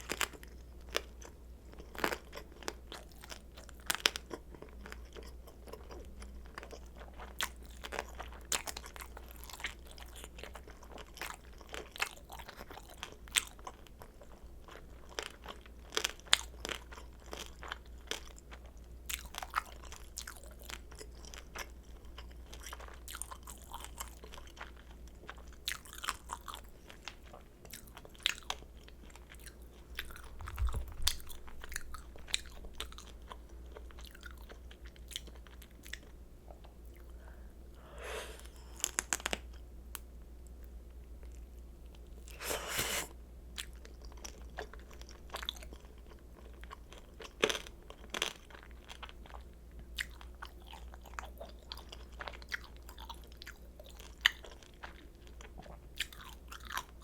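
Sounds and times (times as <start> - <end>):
crunchy chewing: 0.0 - 39.6, 40.5 - 57.0
low steady hum: 0.0 - 57.0.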